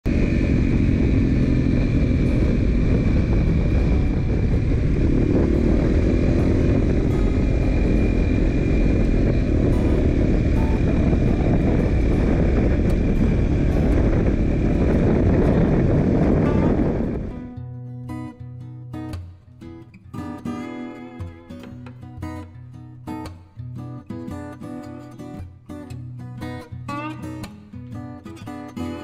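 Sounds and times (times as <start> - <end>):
motorcycle engine running: 0.1 - 17.5.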